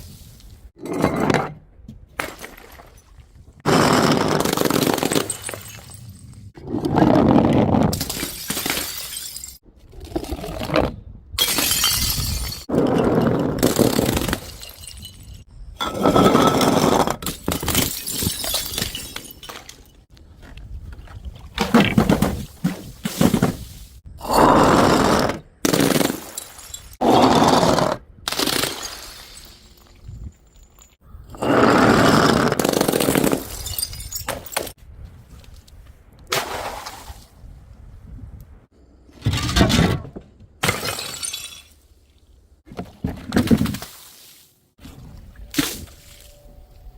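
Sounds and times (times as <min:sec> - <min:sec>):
glass bottles smashing: 0:04.7 - 0:06.3, 0:08.0 - 0:09.6, 0:11.4 - 0:20.1, 0:25.9 - 0:27.0, 0:28.6 - 0:30.9, 0:33.0 - 0:34.8, 0:40.6 - 0:41.8.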